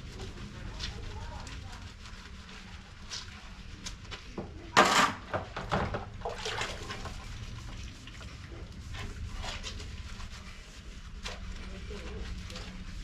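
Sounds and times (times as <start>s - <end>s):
water splashing: 6.1s - 8.5s.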